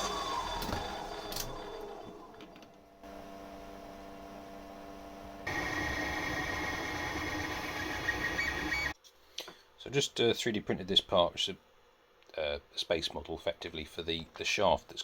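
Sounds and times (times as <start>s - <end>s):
machine motors humming: 0.0s - 9.0s.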